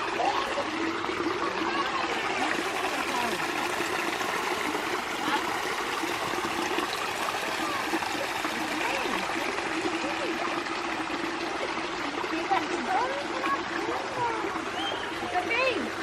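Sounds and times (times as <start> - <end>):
bubbling trickles: 0.0 - 16.0
creek water flowing: 0.0 - 16.0.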